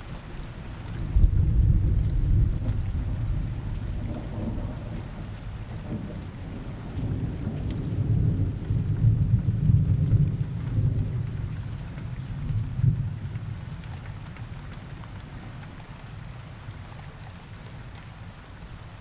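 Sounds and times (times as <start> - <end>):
steady rain: 0.0 - 19.0
low rolling thunder: 1.0 - 13.7.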